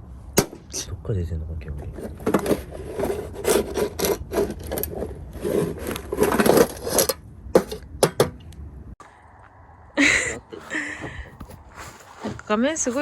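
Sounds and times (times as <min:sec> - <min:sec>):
wood knocking and scraping: 0:01.8 - 0:08.4.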